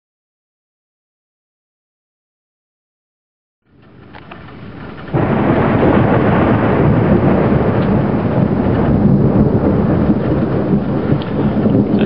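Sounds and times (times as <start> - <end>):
rain: 3.7 - 12.0
thunder rumbling and crashing: 3.7 - 12.0.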